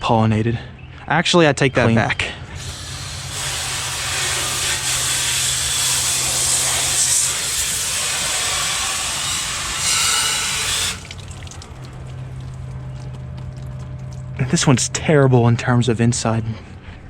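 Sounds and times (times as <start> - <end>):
hose spraying water on metal fins: 2.6 - 12.4.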